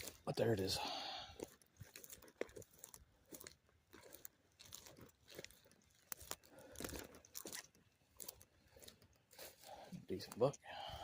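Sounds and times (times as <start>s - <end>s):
footsteps through grass and leaves: 0.0s - 11.0s.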